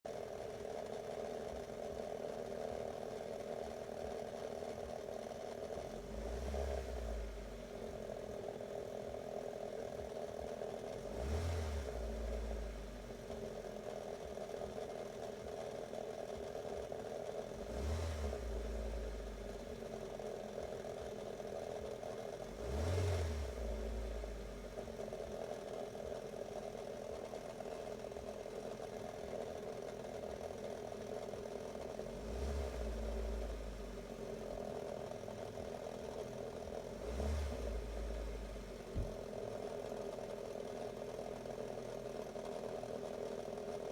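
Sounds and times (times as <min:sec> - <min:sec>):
car engine idling: 0:00.1 - 0:43.9
engine revving: 0:05.9 - 0:07.6, 0:10.9 - 0:13.1, 0:17.5 - 0:19.7, 0:22.5 - 0:24.9, 0:31.9 - 0:40.1.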